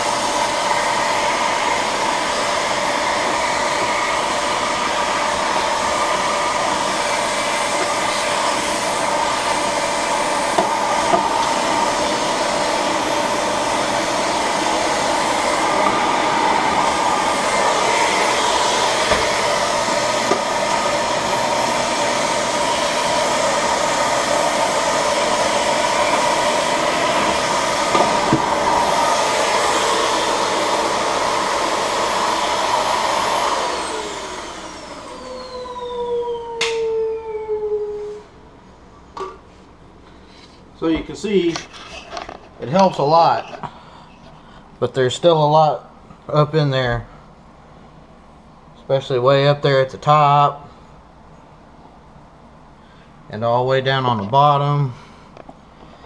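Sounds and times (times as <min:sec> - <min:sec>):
vacuum cleaner whining: 0:00.0 - 0:38.5, 0:40.8 - 0:45.8
nozzle knocking on coil: 0:10.5 - 0:11.6.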